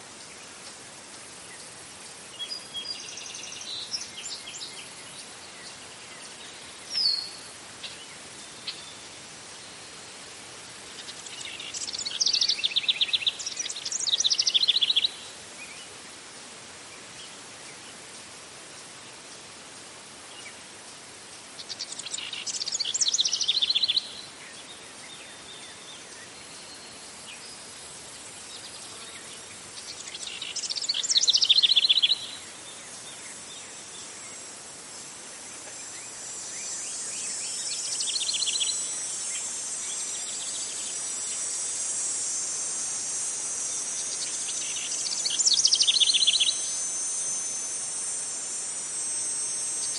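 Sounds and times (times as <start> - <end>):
high insect trill: 0.0 - 49.9
steady hiss: 0.0 - 49.9
bird singing rapid notes: 29.8 - 32.4, 43.9 - 47.8.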